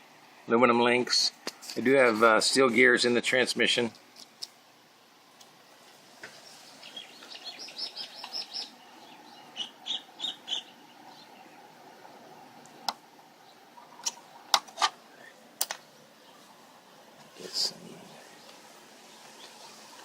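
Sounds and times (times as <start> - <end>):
bird chirping: 6.3 - 11.8.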